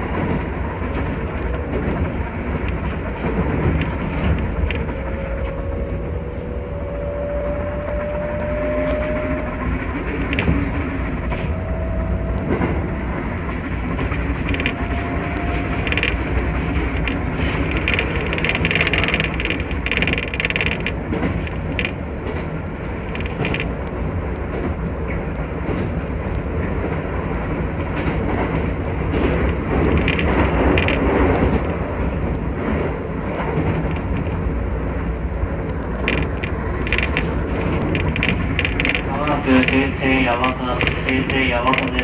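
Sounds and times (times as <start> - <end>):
train wheels rumbling on rails: 0.0 - 42.0
clicks: 12.3 - 42.0.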